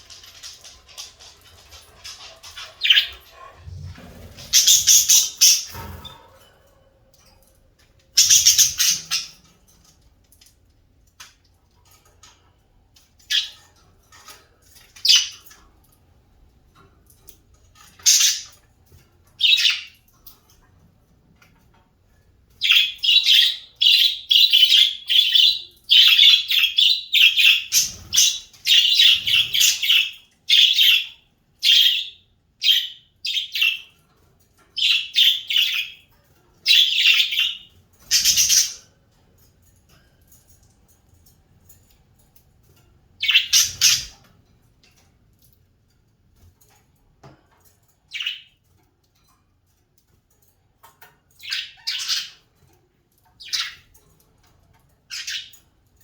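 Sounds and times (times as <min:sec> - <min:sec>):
birds squawking and chirping: 0:00.0 - 0:09.5, 0:17.8 - 0:18.6, 0:22.6 - 0:33.8, 0:34.8 - 0:36.0, 0:36.6 - 0:38.9, 0:43.2 - 0:44.3, 0:48.1 - 0:48.5, 0:51.4 - 0:52.6, 0:53.4 - 0:54.0, 0:55.1 - 0:55.6.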